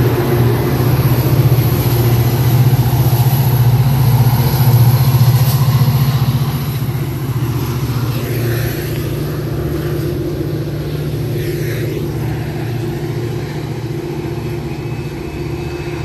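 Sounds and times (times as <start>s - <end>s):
diesel locomotive engine: 0.0s - 16.0s.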